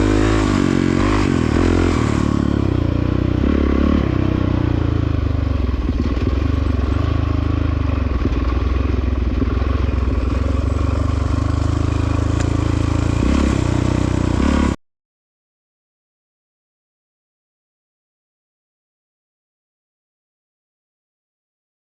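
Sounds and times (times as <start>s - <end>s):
dirt bike engine running: 0.0s - 14.8s
rattle and scrape: 5.6s - 14.7s.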